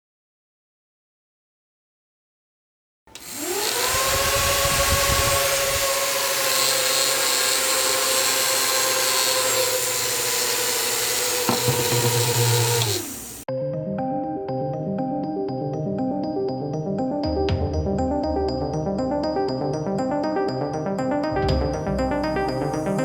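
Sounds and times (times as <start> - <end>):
small fan motor whine: 3.2 - 13.5.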